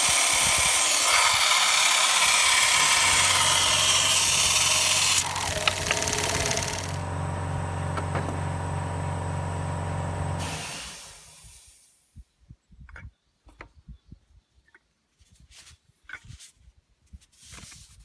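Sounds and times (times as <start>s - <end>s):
engine idling: 0.0s - 11.2s.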